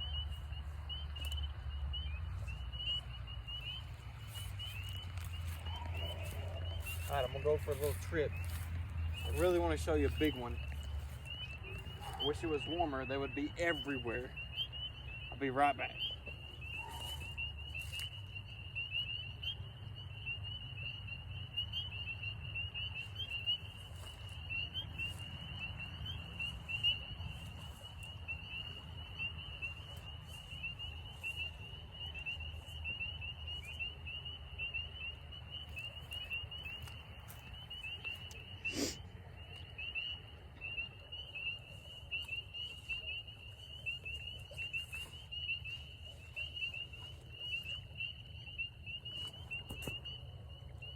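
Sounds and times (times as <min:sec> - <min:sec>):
chorus of frogs peeping: 0:00.0 - 0:50.9.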